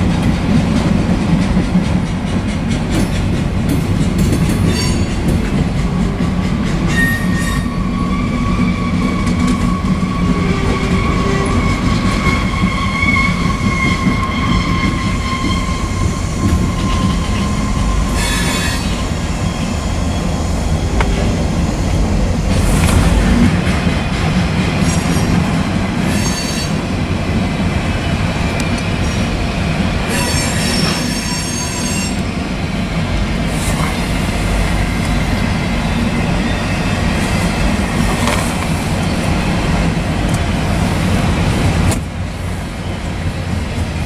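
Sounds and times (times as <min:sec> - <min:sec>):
freight train wheels rumbling: 0:00.0 - 0:44.0
sharp wheel screech: 0:06.9 - 0:19.0, 0:30.1 - 0:32.2
wheel squeal: 0:06.9 - 0:21.1, 0:30.1 - 0:32.2.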